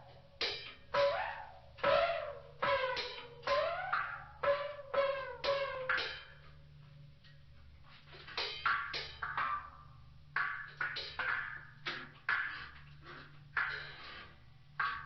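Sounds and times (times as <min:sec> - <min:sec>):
percussive ringing strikes: 0:00.0 - 0:06.5
steady low hum: 0:00.0 - 0:15.0.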